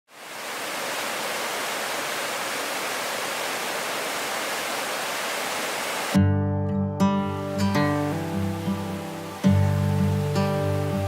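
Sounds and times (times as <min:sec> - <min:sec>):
waterfall rushing: 0:00.1 - 0:06.2, 0:07.3 - 0:11.0
strummed acoustic guitar music: 0:06.2 - 0:11.0.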